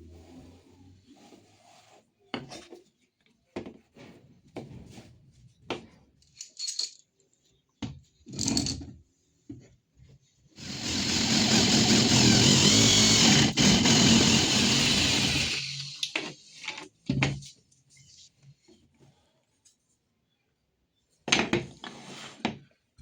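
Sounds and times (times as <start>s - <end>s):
power tool running: 10.6s - 16.1s.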